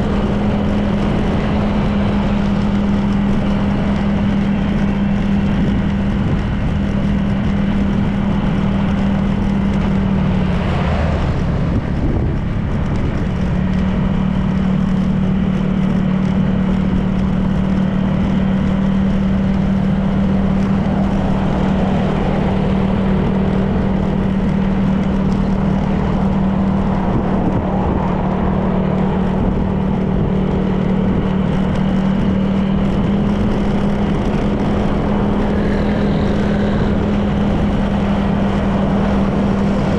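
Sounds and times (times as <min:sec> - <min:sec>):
road and wind noise: 0:00.0 - 0:39.9
scooter engine cruising: 0:00.0 - 0:39.9.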